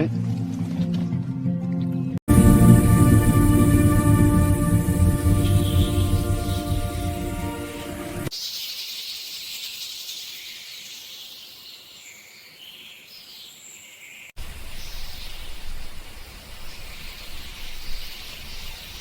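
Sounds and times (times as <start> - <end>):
low rushing noise: 2.3 - 8.3.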